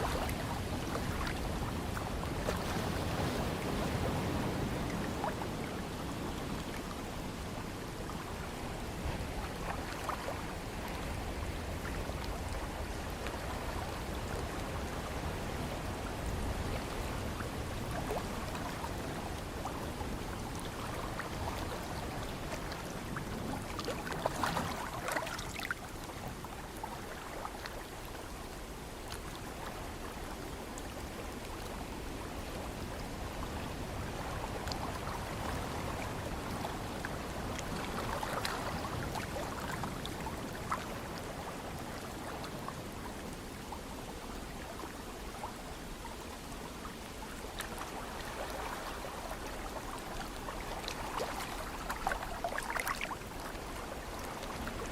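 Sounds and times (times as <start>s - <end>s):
ocean waves lapping: 0.0s - 7.0s, 8.8s - 27.5s.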